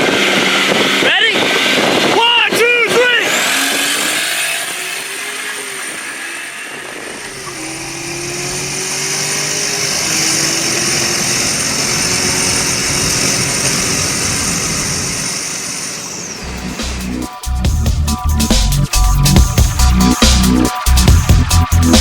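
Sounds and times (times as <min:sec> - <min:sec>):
wind noise rushing: 0:00.0 - 0:09.2, 0:11.1 - 0:17.6
car engine accelerating: 0:00.0 - 0:22.0.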